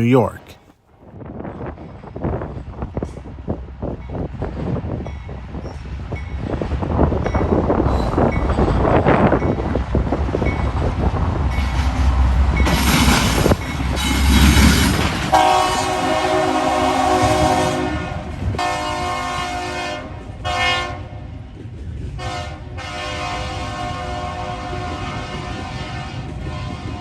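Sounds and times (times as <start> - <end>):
approaching train rumble: 1.2 - 27.0
locomotive air horn blasts: 15.3 - 21.0, 22.2 - 27.0.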